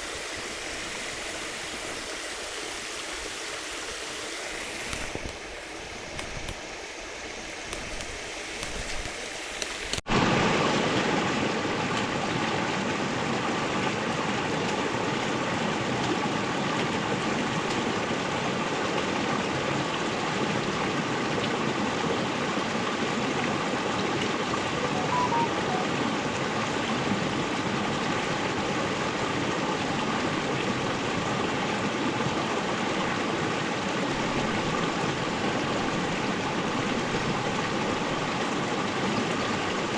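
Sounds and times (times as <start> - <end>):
river water rushing: 0.0 - 12.4.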